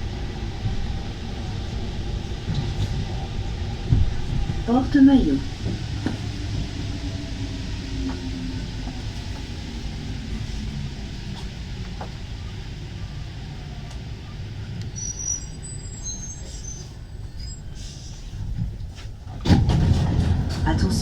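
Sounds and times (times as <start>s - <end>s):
metro train rumbling: 0.0s - 21.0s
faint high squeals: 14.9s - 18.2s.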